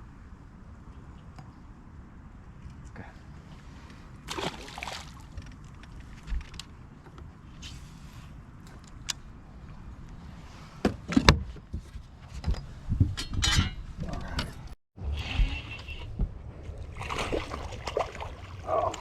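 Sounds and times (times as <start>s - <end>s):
wind rumble on microphone: 5.2s - 19.0s.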